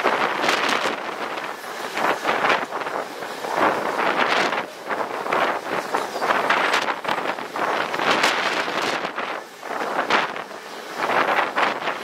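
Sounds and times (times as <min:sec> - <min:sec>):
freight train rushing past: 0:00.0 - 0:12.0
wind buffeting microphone: 0:00.0 - 0:12.0.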